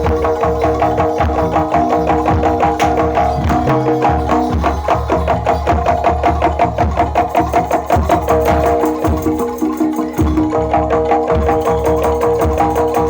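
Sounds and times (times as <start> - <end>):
sustained ringing tones: 0.0 - 7.0
drums and percussion: 0.0 - 13.0.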